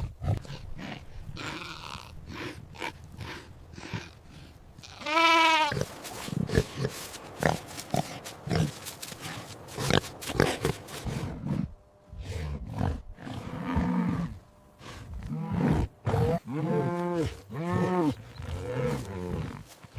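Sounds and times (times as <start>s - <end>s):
farm animals grunting and snuffling: 0.0s - 19.9s
sheep bleating: 4.8s - 6.0s.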